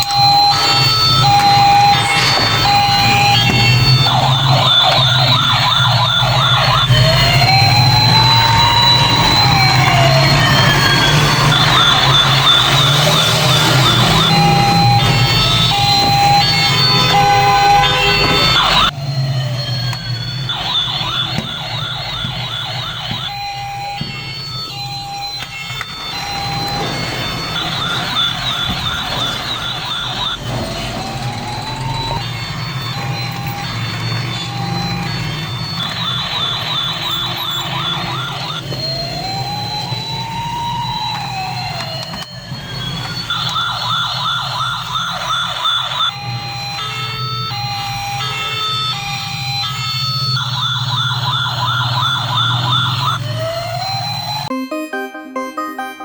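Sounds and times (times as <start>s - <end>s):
short steady beeping tones: 0.0s - 7.1s
steady beeping tones: 0.0s - 38.5s, 54.3s - 56.0s
toy siren warbling: 0.0s - 56.0s.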